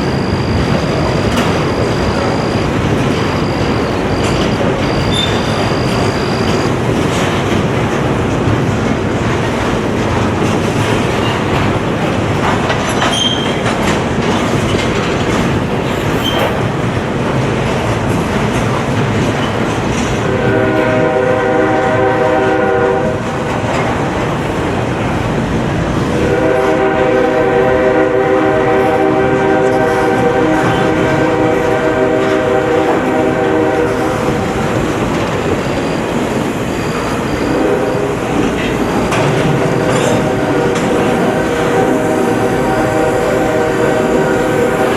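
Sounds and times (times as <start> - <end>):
train wheels clattering on rails: 0.0 - 44.9
train air horn: 20.2 - 23.4, 26.1 - 34.9, 37.0 - 38.6, 39.2 - 44.9.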